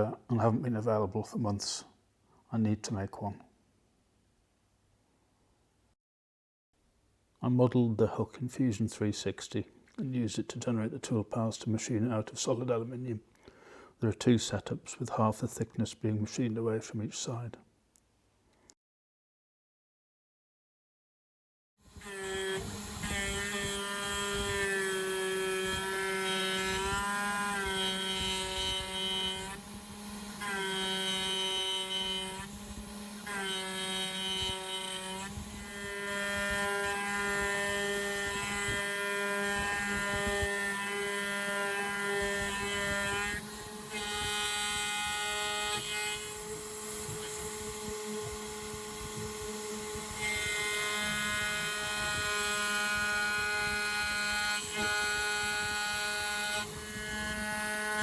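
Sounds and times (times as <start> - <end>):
router cutting metal tones: 21.8 - 58.0.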